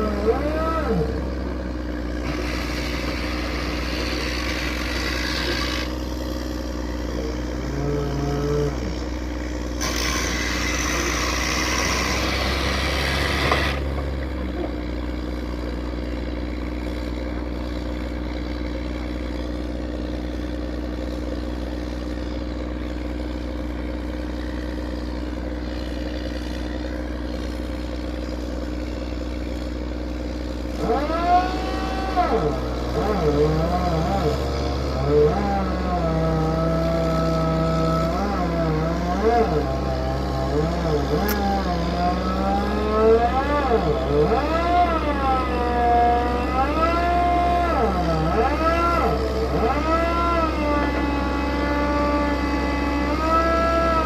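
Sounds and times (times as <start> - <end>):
rushing grinding noise: 0.0 - 15.1
drilling machine engine drone: 0.0 - 54.0.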